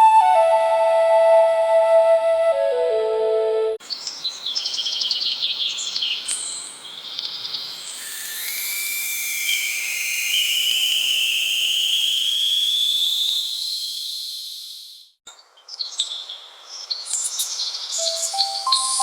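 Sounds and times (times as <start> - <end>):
high whistling tone rising: 0.0 - 3.8, 7.9 - 14.8
steady hiss: 3.8 - 15.2.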